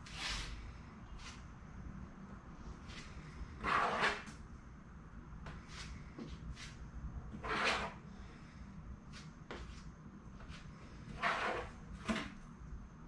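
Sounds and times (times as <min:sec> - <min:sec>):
plastic spreader scraping filler: 0:11.1 - 0:12.4.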